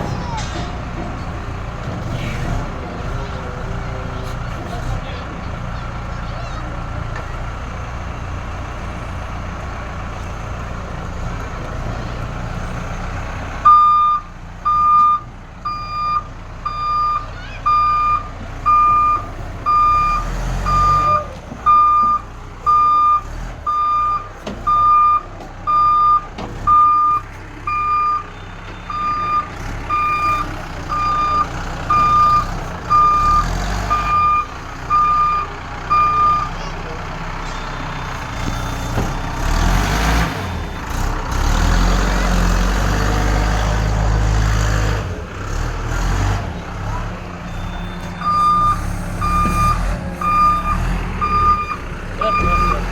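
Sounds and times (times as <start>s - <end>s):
diesel engine running: 0.0s - 52.9s
reversing alarm beeping: 13.6s - 36.6s, 47.5s - 52.9s.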